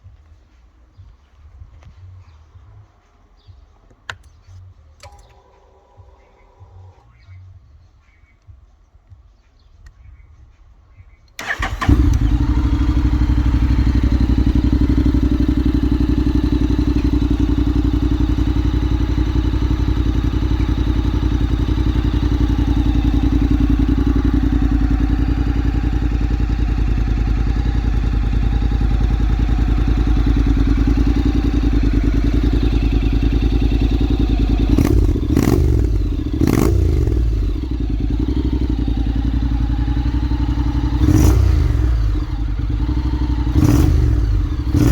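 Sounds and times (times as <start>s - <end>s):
motorcycle throttle blips: 11.2s - 44.9s
motorcycle engine idling: 11.4s - 44.9s.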